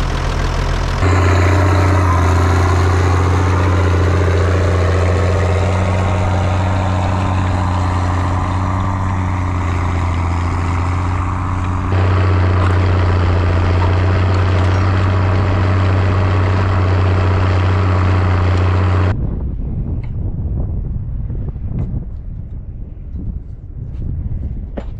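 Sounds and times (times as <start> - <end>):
tractor diesel engine running: 0.0 - 19.2
wind on microphone: 19.1 - 24.9.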